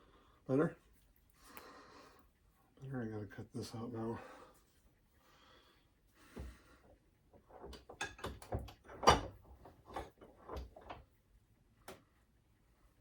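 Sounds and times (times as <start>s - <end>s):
metal tools knocking and clunking: 7.5s - 11.0s.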